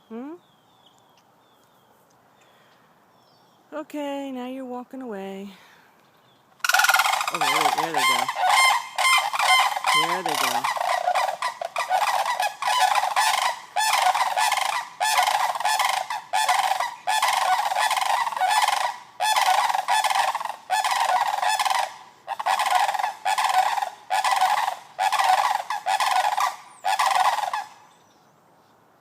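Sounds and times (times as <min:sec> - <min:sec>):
birds honking loudly: 0:06.6 - 0:27.8.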